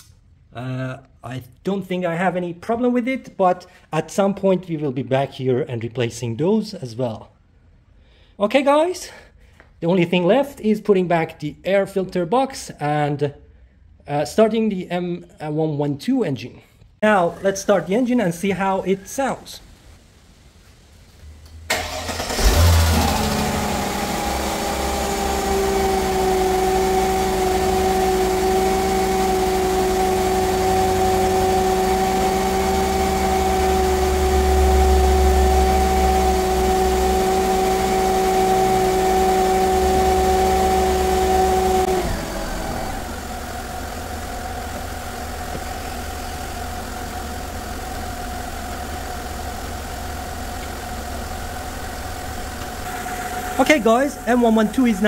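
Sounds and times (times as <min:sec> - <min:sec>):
steady whine: 0:21.1 - 0:55.0
car engine idling: 0:21.7 - 0:55.0.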